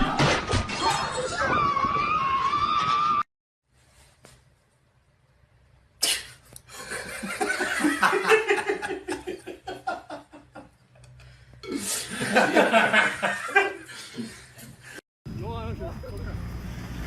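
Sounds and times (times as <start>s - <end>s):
people laughing hard: 6.7s - 10.7s, 11.9s - 14.8s.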